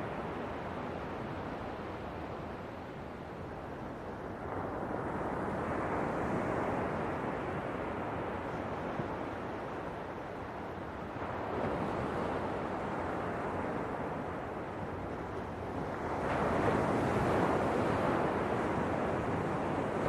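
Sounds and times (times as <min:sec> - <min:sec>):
ocean waves washing ashore: 0:00.0 - 0:20.0.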